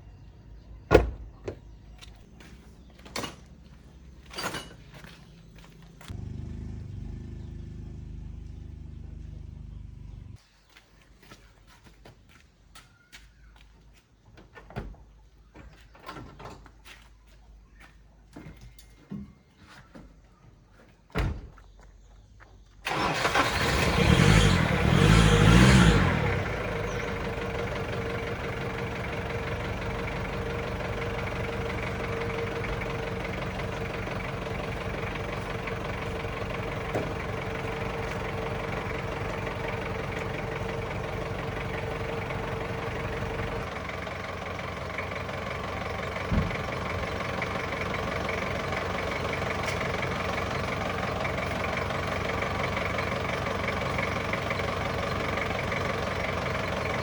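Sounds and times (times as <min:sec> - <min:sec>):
pickup engine idling: 0:22.8 - 0:57.0.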